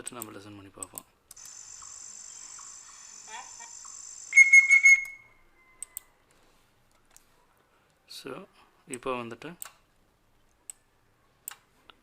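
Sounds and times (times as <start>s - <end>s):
insect trill: 1.4s - 5.2s
rising bird chirp: 1.4s - 5.9s
whistled bird calls: 1.5s - 5.9s.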